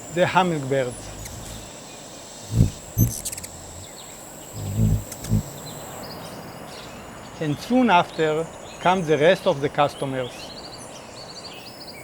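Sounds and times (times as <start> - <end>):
insect droning high note: 0.6 - 1.7, 2.4 - 4.0, 4.6 - 5.6
short low hums: 0.9 - 1.7, 2.4 - 3.9, 4.6 - 5.6
high clicks patter: 2.5 - 3.9.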